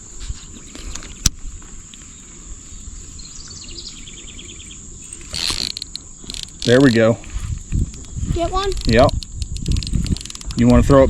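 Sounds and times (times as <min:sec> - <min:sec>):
insect drone: 0:00.0 - 0:11.0
quick ticks or chirps: 0:08.7 - 0:10.6.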